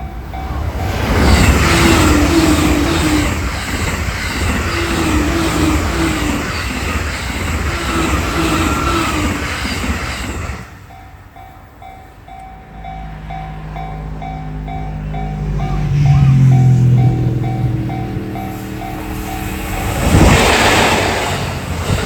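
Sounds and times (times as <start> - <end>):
crossing warning bell ringing: 0.0 - 22.0
train passing at high speed: 0.0 - 22.0.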